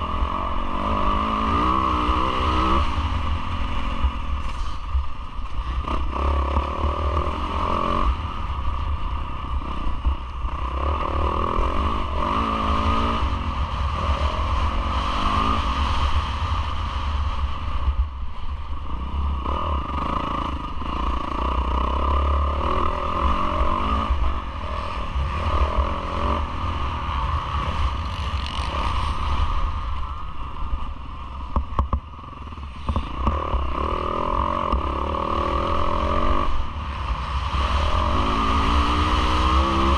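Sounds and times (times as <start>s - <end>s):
motocross engine revving: 10.5s - 16.1s, 19.0s - 29.6s, 32.9s - 39.9s.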